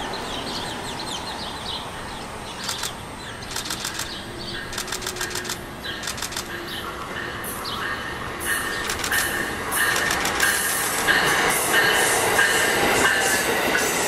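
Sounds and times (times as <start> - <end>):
distant train rumble and hiss: 0.0 - 14.0
rapid clicking: 2.6 - 6.6, 8.8 - 10.7.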